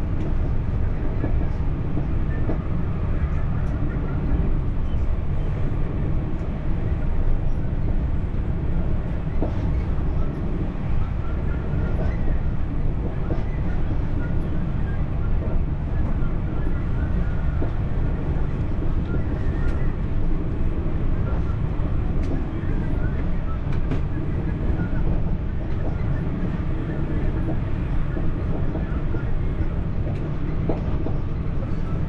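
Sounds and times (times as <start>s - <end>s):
train rumbling along track: 0.0s - 32.0s.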